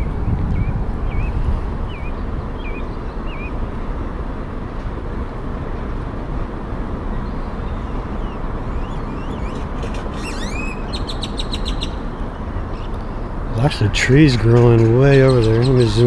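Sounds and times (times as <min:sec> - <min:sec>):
bird chirping: 0:00.0 - 0:03.6, 0:07.0 - 0:16.0
low outdoor rumble: 0:00.0 - 0:16.0.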